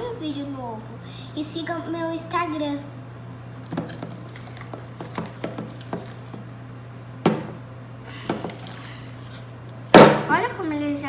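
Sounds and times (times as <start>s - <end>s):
knock: 7.3s - 7.6s.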